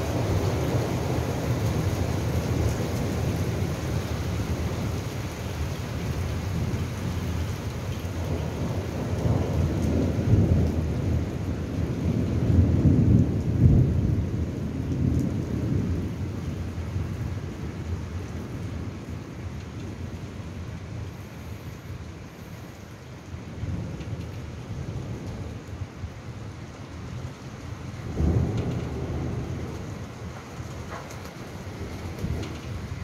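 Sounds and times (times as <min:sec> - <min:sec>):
rain falling: 0:00.0 - 0:33.0
deep thunder rumbles: 0:08.1 - 0:16.5, 0:27.8 - 0:33.0.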